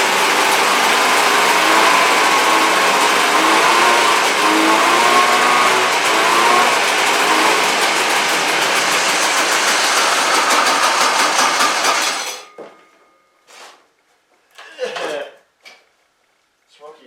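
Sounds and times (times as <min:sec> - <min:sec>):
two-stroke snowmobile engine running: 0:00.0 - 0:12.4.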